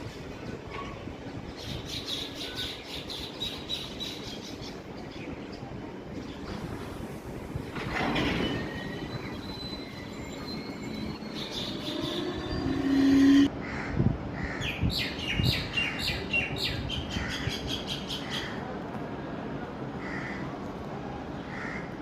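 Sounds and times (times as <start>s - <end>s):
train sounds: 0.0s - 14.4s
loud steady tone: 8.5s - 13.5s
birds chirping: 8.7s - 13.5s.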